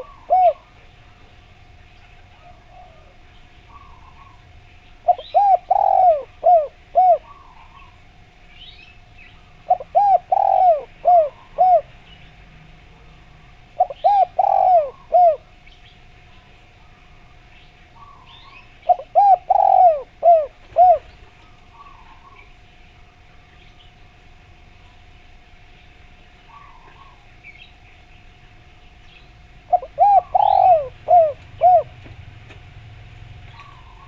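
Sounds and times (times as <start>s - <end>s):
dove cooing: 0.0s - 8.0s, 9.6s - 12.1s, 13.0s - 15.7s, 17.9s - 22.6s, 26.5s - 27.4s, 29.4s - 34.0s
faint steady hum: 0.0s - 34.0s.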